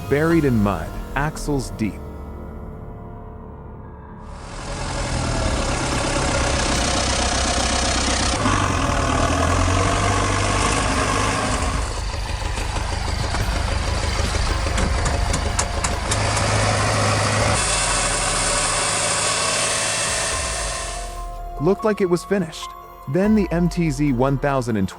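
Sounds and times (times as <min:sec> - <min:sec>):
tractor diesel engine under load: 0:04.3 - 0:21.4.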